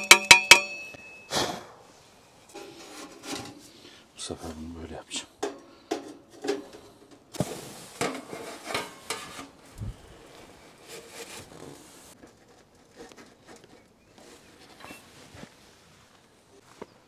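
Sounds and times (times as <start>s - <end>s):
camp gear knocking and clinking: 0.0s - 1.7s, 5.4s - 9.7s.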